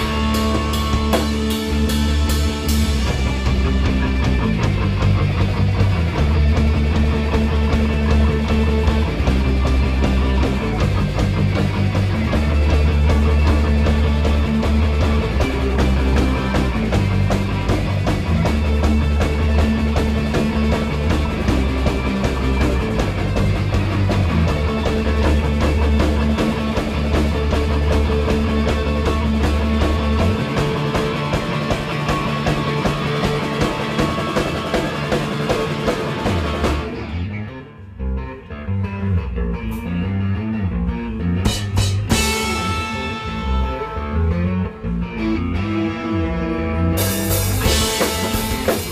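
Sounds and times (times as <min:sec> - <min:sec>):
drum kit: 0:00.0 - 0:37.3, 0:41.3 - 0:44.2, 0:47.0 - 0:48.9
bass guitar: 0:00.0 - 0:48.9
distorted electric guitar: 0:00.0 - 0:48.9.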